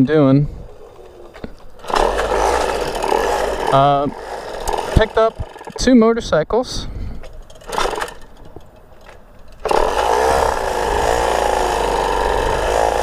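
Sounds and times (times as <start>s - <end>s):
moped engine running: 0.6s - 6.0s, 9.6s - 13.0s.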